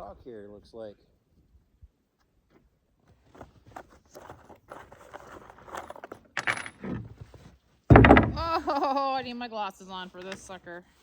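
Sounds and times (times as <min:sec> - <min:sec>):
metallic clinks and rattles: 0:05.8 - 0:07.0.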